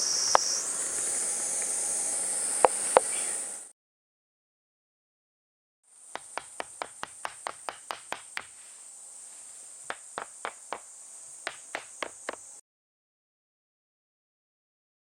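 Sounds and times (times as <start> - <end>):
insect sharp ticks: 0.0 - 1.8, 2.5 - 3.6, 5.9 - 12.6
insect high-pitched buzz: 0.0 - 3.7, 5.9 - 12.6.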